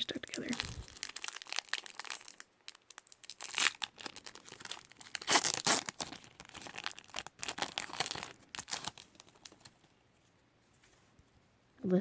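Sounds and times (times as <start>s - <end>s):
cards tearing apart: 3.4s - 9.0s.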